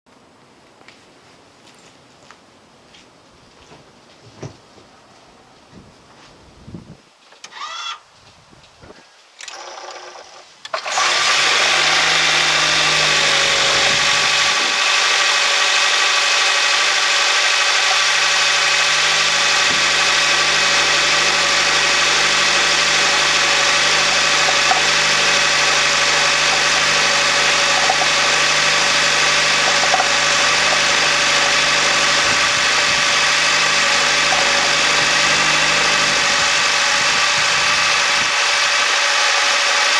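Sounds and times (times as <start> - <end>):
car engine starting and running: 9.5 - 39.9
engine rattling: 9.6 - 39.9.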